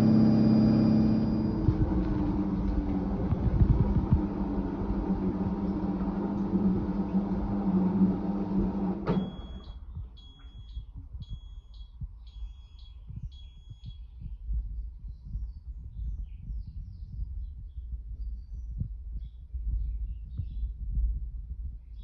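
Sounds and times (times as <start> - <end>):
washing machine motor humming: 0.0 - 10.5
short high beeps: 9.2 - 12.8.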